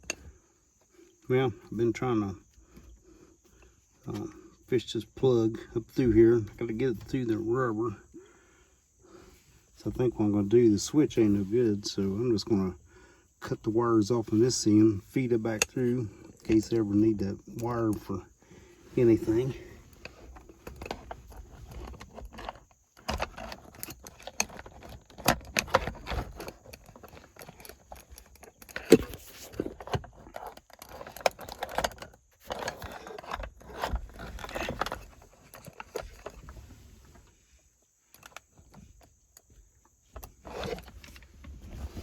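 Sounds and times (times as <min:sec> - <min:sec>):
tools and wires being handled: 0:18.9 - 0:42.0.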